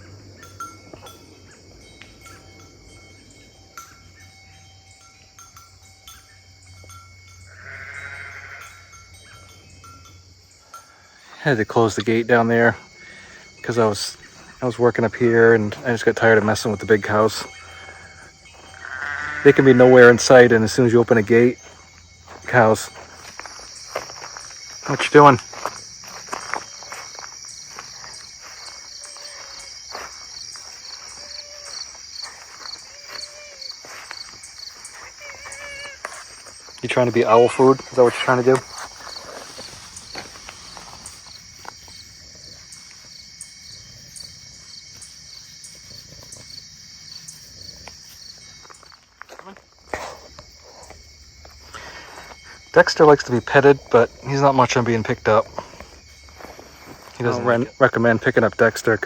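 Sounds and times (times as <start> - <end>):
crickets chirping: 0.0 - 59.0
sheep bleating: 7.5 - 8.8, 17.5 - 20.0, 35.0 - 36.2.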